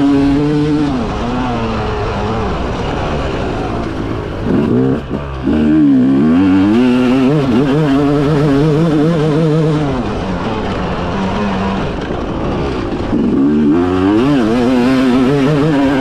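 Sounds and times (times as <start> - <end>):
motocross bike engine revving: 0.0 - 16.0.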